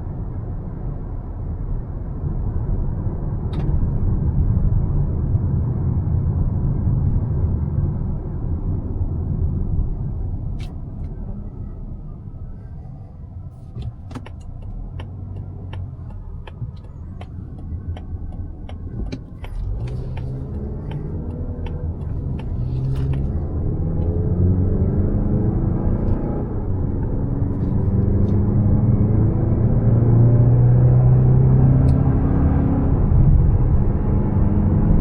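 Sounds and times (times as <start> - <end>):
road and engine rumble in car: 0.0 - 35.0
car engine accelerating: 10.6 - 35.0
turn signal ticking: 13.7 - 24.2.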